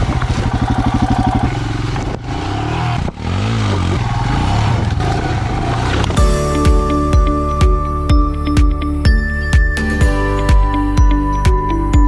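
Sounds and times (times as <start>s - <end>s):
motorcycle engine running: 0.0s - 9.7s
music with steady beat: 6.2s - 12.0s.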